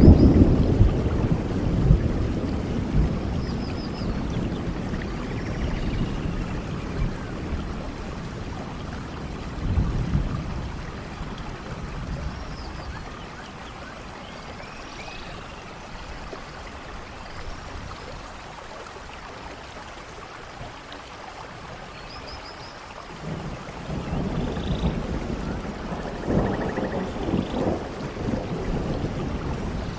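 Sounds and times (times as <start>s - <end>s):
low thunder rumbles: 0.0s - 13.2s, 23.2s - 29.9s
steady rainfall: 0.0s - 29.9s.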